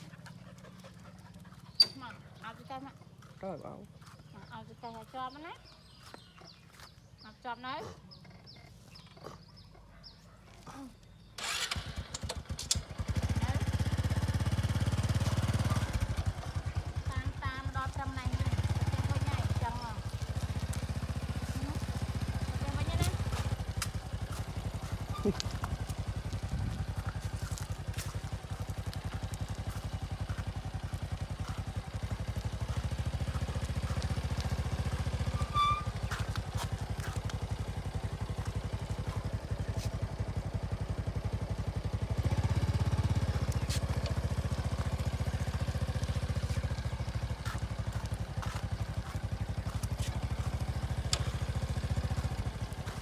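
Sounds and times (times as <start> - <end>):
motorcycle engine running: 11.4 - 53.0.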